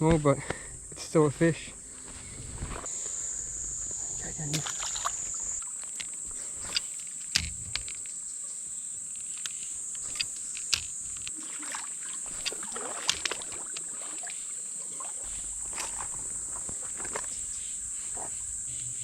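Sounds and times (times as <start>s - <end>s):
insects buzzing: 0.0s - 19.0s
sharp clicks and knocks: 5.8s - 8.2s, 9.2s - 11.4s.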